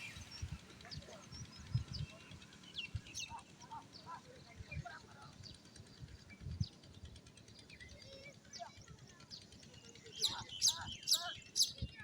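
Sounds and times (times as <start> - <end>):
birds chirping and calling: 10.1 - 11.9.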